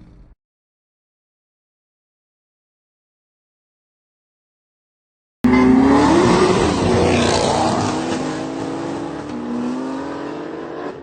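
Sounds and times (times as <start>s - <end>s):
car engine revving: 5.5s - 11.0s.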